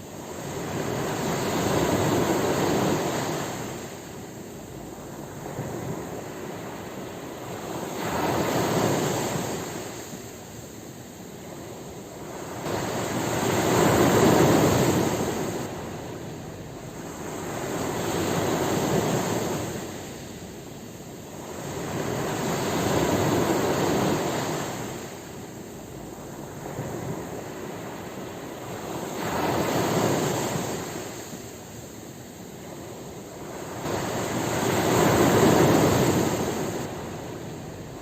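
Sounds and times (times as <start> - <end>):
ocean waves breaking on shore: 0.0 - 38.0.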